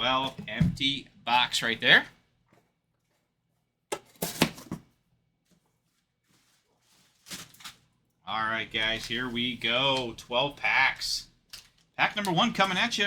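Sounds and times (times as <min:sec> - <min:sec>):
card packs rustling and tapping: 0:03.9 - 0:07.9, 0:08.7 - 0:13.0.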